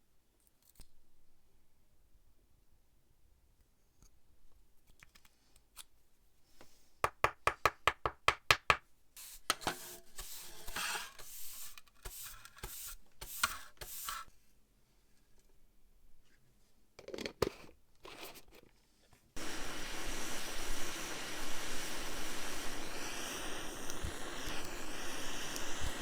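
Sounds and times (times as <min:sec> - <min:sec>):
scraping strokes: 0:09.2 - 0:14.3.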